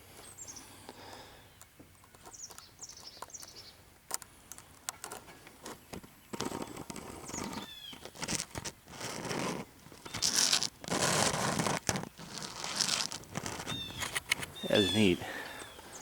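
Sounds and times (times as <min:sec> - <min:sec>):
clicks and scratchy noise: 0:04.1 - 0:14.6
songbird calling high notes: 0:13.8 - 0:16.0.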